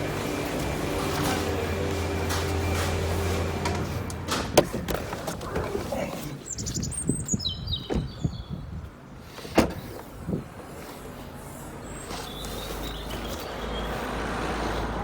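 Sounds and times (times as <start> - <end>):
small bird singing: 6.4 - 8.6.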